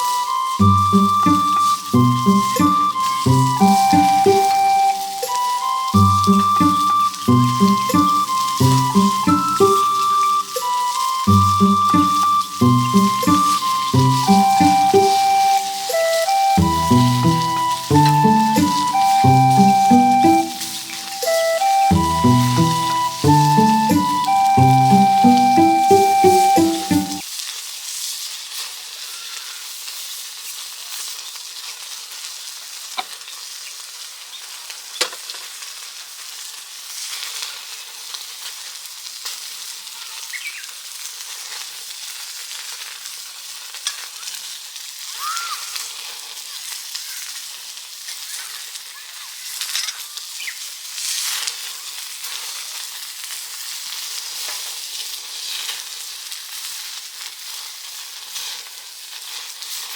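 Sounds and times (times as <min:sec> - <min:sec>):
meat sizzling on grill plate: 0:27.2 - 0:59.9.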